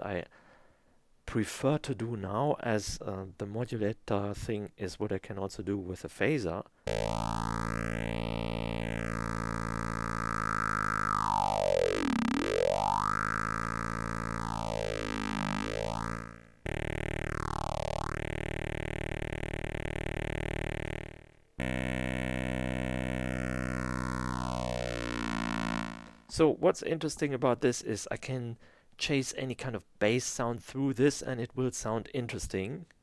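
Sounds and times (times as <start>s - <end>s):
synthesizer tone with phaser sweep: 6.9s - 26.3s.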